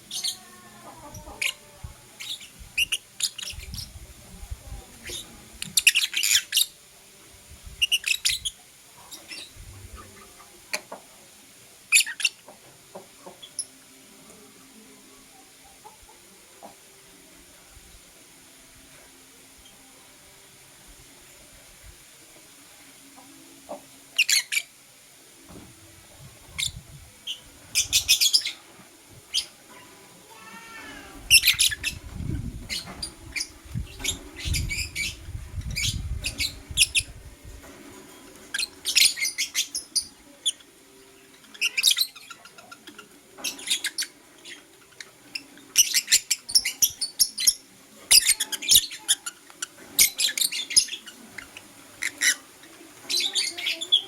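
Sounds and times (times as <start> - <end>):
lovebird chirping: 31.3 - 32.0.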